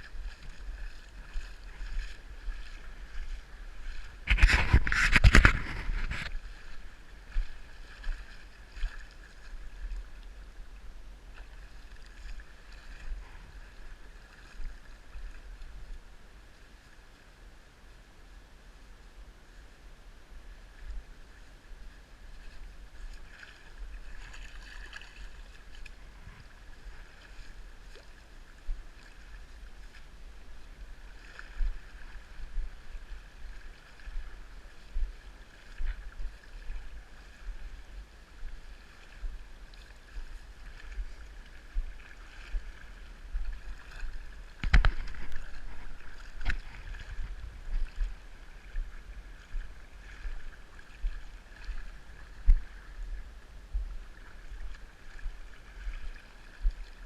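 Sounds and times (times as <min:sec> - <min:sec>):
flowing river water: 0:00.0 - 0:57.0
low thumps on microphone: 0:04.2 - 0:06.4, 0:44.6 - 0:48.2, 0:53.7 - 0:54.0.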